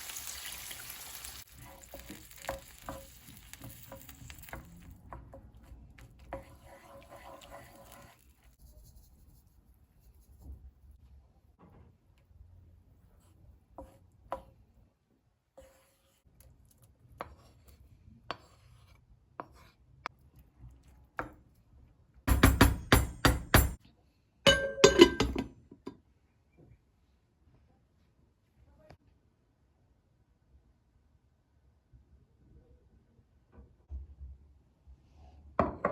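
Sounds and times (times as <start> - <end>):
dishes and utensils clinking: 24.5 - 25.9.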